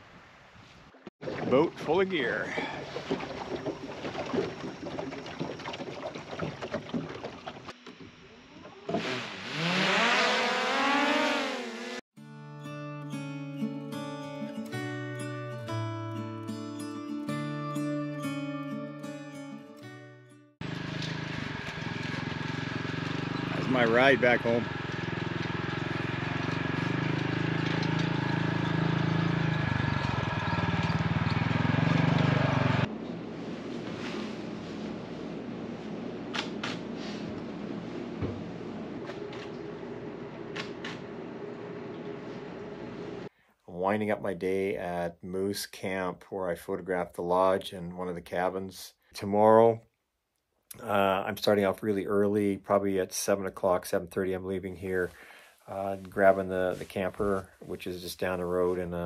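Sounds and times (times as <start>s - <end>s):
drone propeller whine: 20.6s - 32.9s
utility vehicle engine running: 20.6s - 32.9s.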